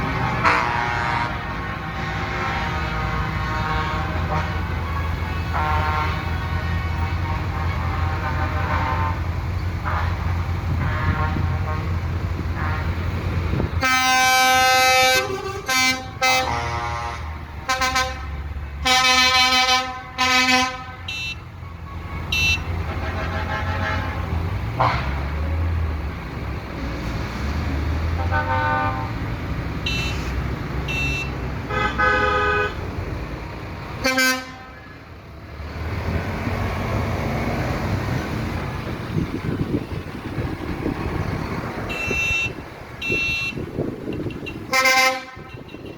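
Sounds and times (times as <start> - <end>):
vehicle engines rumbling: 0.0 - 45.9
vehicle horn blasts: 0.4 - 9.2, 10.8 - 11.9, 13.8 - 21.4, 22.3 - 24.2, 28.2 - 29.2, 29.8 - 32.8, 34.0 - 35.0, 41.9 - 45.9.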